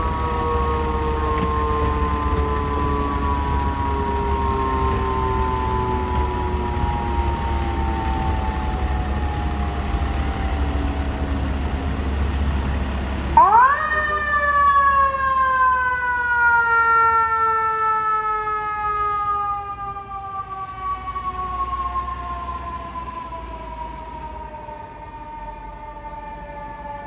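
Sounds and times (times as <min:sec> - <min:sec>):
fire truck siren winding: 0:00.0 - 0:11.4, 0:13.4 - 0:27.0
truck engine rumble: 0:00.0 - 0:27.0.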